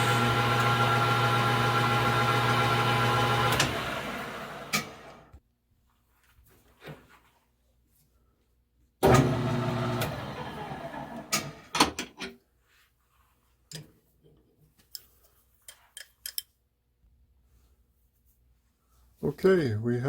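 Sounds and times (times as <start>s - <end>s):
metal lathe running: 0.0s - 5.2s
metallic clicks of tools: 14.8s - 16.6s.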